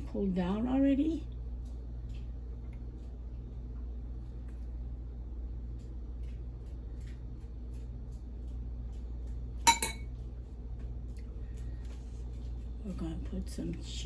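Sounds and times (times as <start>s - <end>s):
steady low hum: 0.0s - 14.0s
utensil clinking against dish: 9.7s - 10.1s.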